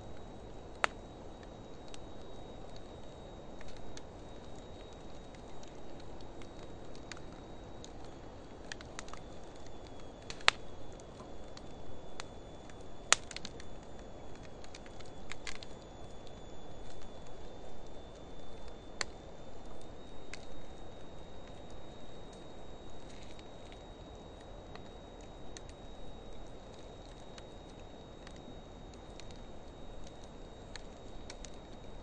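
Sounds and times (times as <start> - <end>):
wood fire crackling: 0.0 - 32.0
sharp pops of fire: 3.6 - 17.1.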